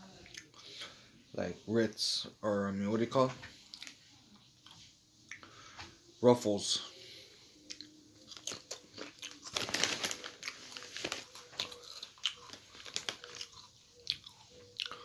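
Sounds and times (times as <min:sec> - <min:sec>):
person crunching potato chips: 0:07.7 - 0:15.0.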